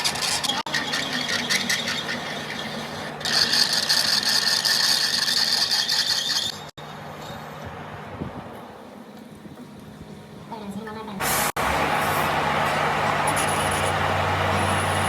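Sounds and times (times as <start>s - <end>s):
rough scraping on steel: 0.0s - 6.7s.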